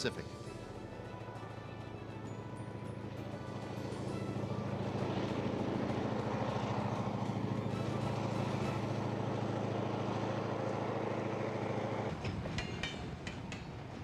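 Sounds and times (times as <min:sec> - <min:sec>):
diesel locomotives humming: 0:00.0 - 0:14.0
rolling cars clicking and clanking: 0:10.6 - 0:14.0.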